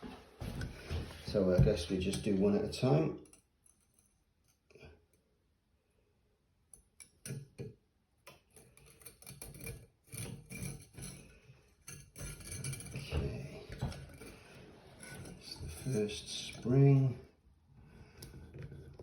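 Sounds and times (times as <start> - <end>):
parts clicking and scraping: 8.3 - 16.8.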